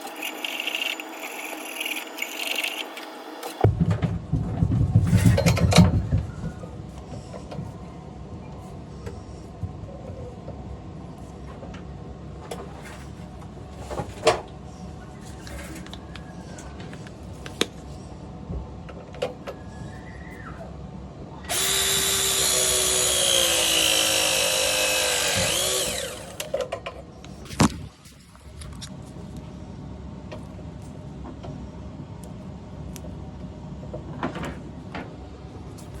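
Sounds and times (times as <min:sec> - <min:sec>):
power drill running: 0:00.0 - 0:03.3, 0:21.5 - 0:26.5.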